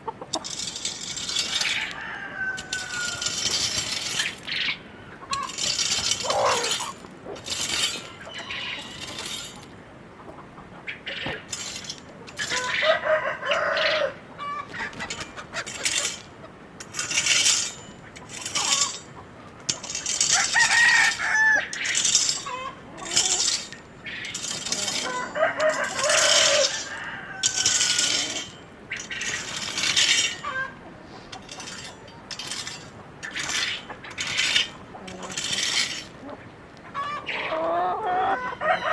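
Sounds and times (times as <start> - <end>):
chickens clucking: 0.0 - 38.9
clattering and scraping: 0.2 - 4.7, 5.3 - 9.7, 11.2 - 12.8, 14.7 - 36.2
rooster crowing: 1.6 - 3.4, 12.8 - 14.2, 20.3 - 21.7, 25.0 - 28.1, 38.3 - 38.9.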